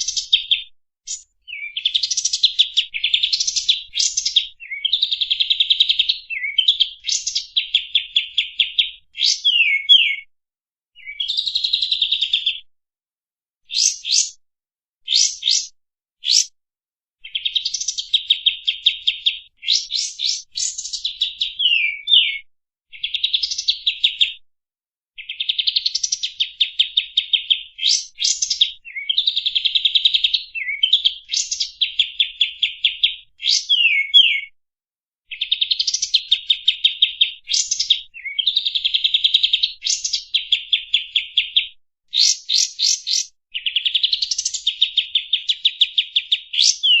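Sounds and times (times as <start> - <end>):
bird whistled sweeps: 15.1 - 16.5.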